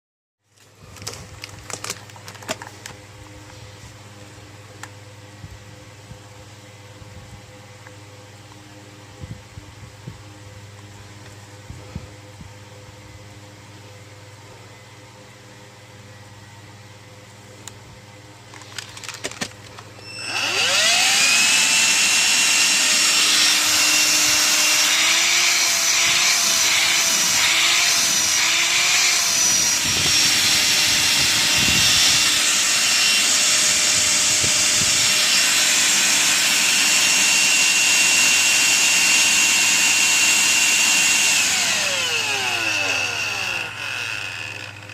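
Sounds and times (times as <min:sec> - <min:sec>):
vacuum motor whining: 0:18.5 - 0:44.9.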